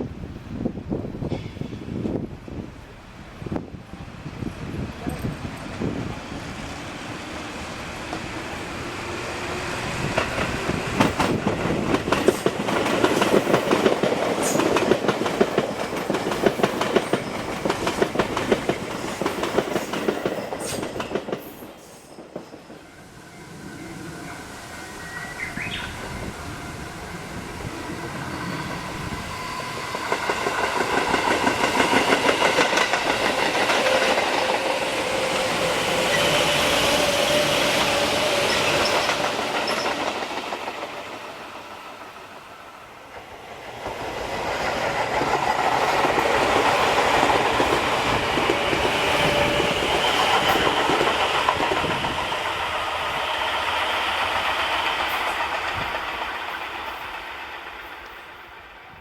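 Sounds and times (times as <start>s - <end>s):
wheels clacking on rail joints: 9.7s - 22.8s, 29.7s - 42.1s, 43.2s - 58.3s.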